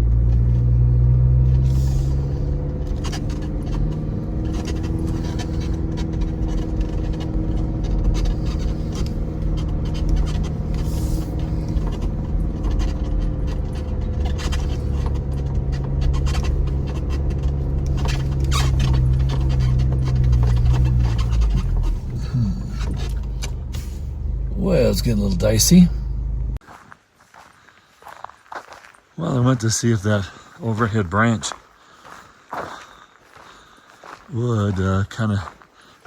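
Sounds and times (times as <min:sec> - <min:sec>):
truck engine running: 0:00.0 - 0:26.6
clicks rattles and scrapes: 0:01.5 - 0:23.9.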